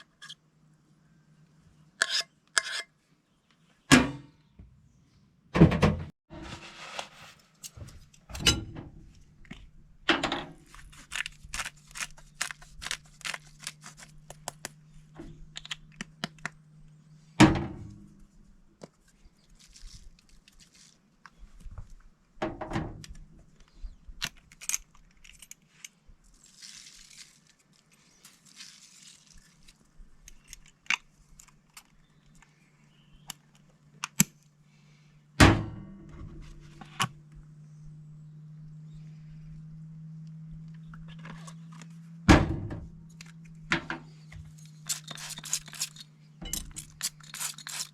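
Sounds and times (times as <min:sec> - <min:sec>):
low hum: 0:34.6 - 0:47.4.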